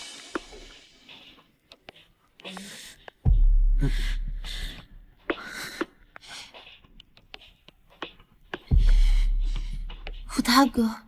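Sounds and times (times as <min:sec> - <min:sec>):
person gasping and sighing: 0:03.7 - 0:06.6.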